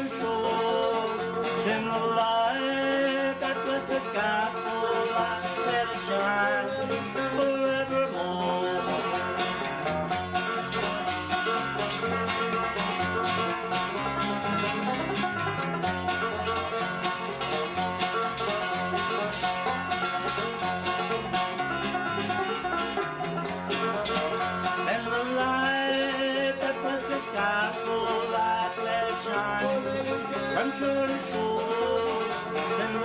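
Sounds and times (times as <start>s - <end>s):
person singing: 0.0s - 9.6s, 24.6s - 33.0s
plucked string notes: 0.0s - 33.0s.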